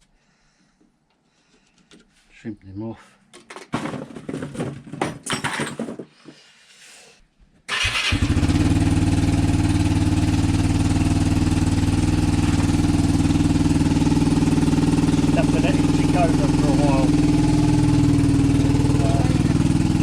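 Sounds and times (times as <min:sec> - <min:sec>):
scooter engine idling: 0:07.7 - 0:20.0.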